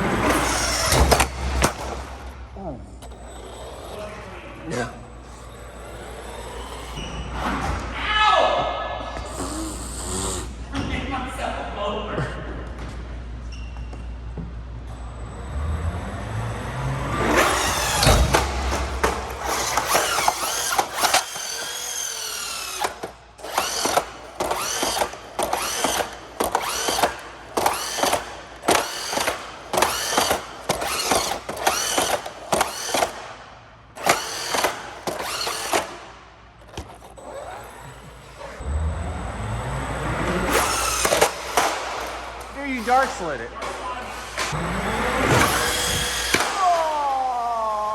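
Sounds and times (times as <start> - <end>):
electric motor whining: 0.0 - 7.4, 9.2 - 10.6, 15.3 - 33.3, 33.9 - 42.6, 44.4 - 46.6.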